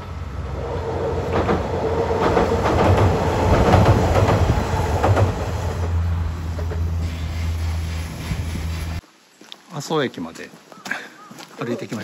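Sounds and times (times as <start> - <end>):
low engine drone: 0.0 - 9.0
train wheels clicking over rail joints: 1.2 - 7.2.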